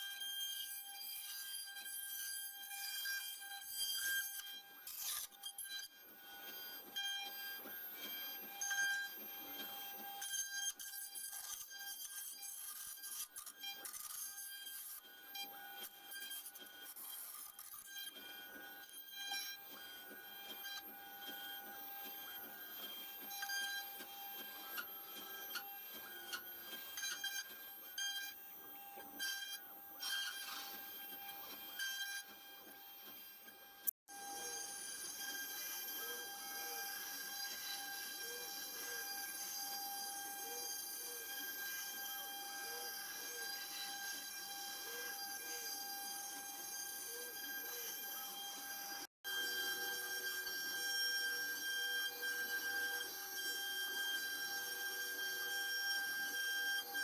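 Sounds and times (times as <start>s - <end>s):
cutter milling wood: 17.9s - 57.0s.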